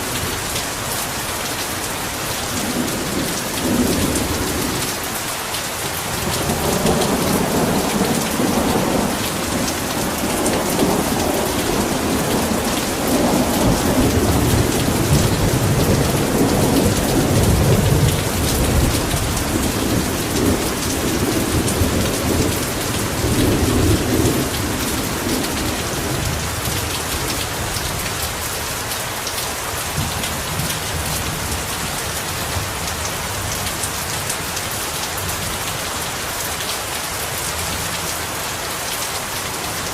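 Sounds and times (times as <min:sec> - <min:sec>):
heavy rain pouring: 0:00.0 - 0:39.9
rolling thunder rumble: 0:06.2 - 0:28.0.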